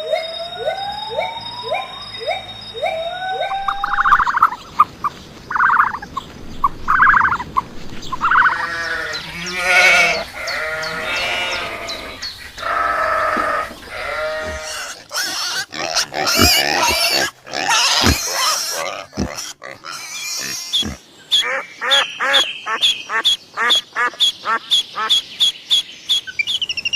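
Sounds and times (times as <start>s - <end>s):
drawn-out animal calls: 1.7s - 25.2s
animal grunting calls: 6.7s - 21.1s.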